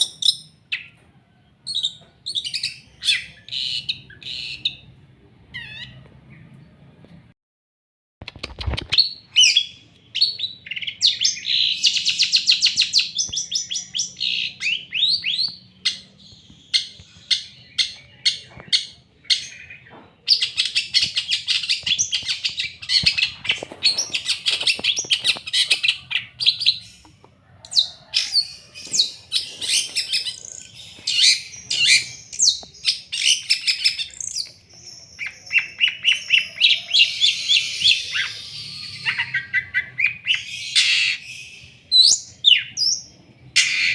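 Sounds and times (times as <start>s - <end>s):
bird singing fast chatter: 8.4s - 42.9s.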